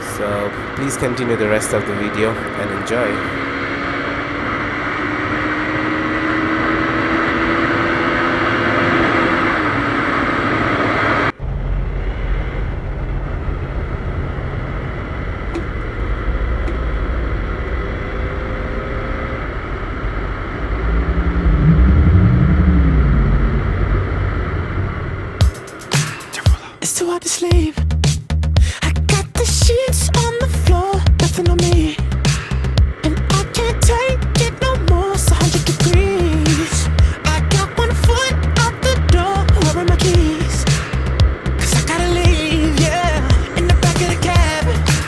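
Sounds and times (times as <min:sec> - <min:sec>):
motorcycle engine running: 0:00.0 - 0:45.0
wind rush: 0:09.5 - 0:26.8.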